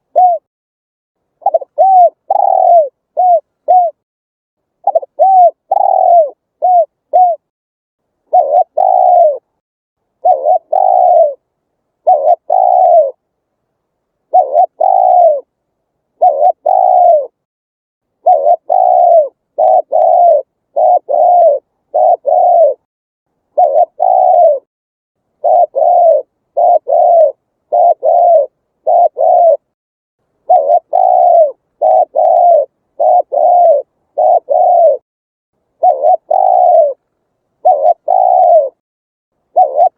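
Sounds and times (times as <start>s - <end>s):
dove cooing: 0.0s - 0.5s, 1.4s - 4.0s, 4.8s - 7.5s, 8.3s - 9.5s, 10.2s - 13.2s, 14.3s - 15.5s, 16.2s - 17.4s, 18.2s - 22.9s, 23.5s - 24.7s, 25.4s - 29.8s, 30.5s - 35.0s, 35.8s - 38.8s, 39.5s - 39.9s.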